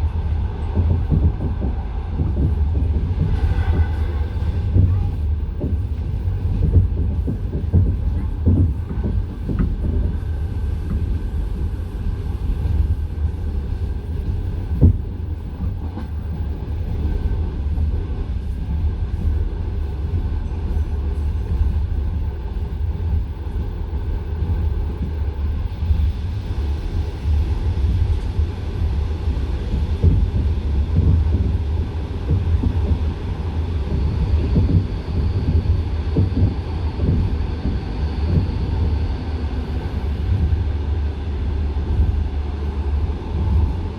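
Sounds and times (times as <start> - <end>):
train wheels clattering on rails: 0.1 - 23.2, 29.5 - 39.1.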